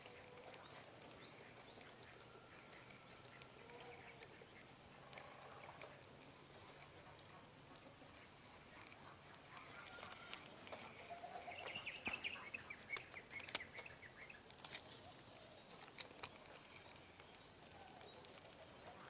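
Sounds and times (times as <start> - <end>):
bird chirping: 8.7 - 19.0
sharp clicks: 12.9 - 13.9.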